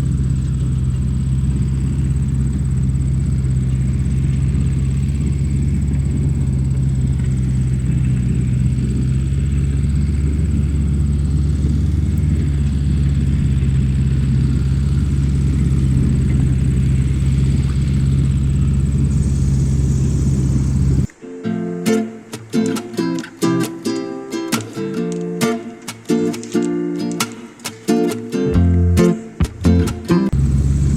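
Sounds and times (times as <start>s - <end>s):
small motor humming with whine: 0.0s - 21.1s.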